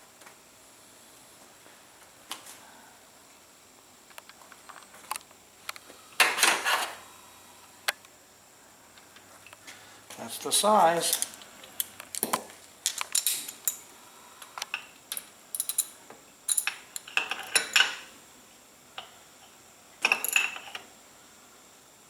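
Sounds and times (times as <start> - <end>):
metal tools clinking: 10.9 - 11.4, 12.1 - 13.8, 14.7 - 18.0, 20.0 - 20.8.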